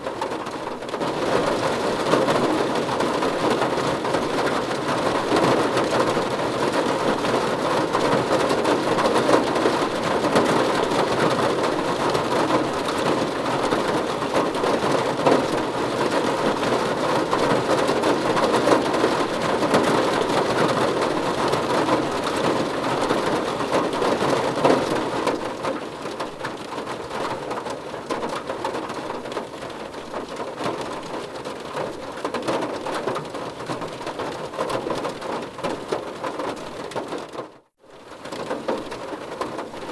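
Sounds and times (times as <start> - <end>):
dense rainfall: 0.0 - 39.9.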